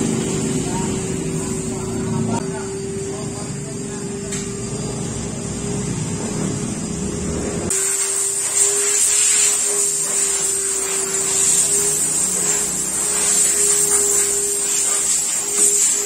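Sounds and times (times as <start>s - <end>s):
car wash motor hum: 0.0s - 16.0s
loud hiss: 7.7s - 16.0s.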